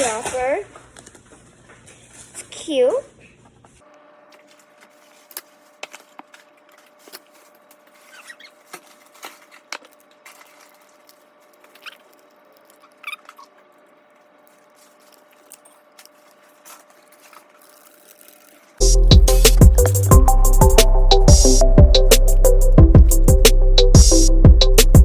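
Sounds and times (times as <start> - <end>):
short squeaks: 7.9 - 9.0, 11.6 - 13.8.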